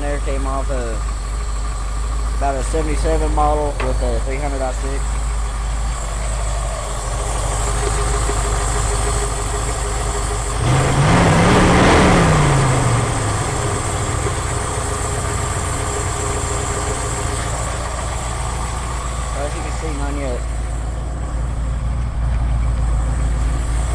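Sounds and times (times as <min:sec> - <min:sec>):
car engine idling: 0:00.0 - 0:23.9
engine revving: 0:00.0 - 0:23.9.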